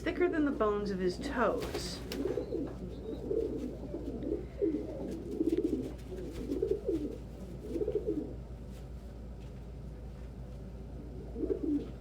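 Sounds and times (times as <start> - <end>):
pigeons cooing: 1.2 - 8.5, 10.9 - 12.0.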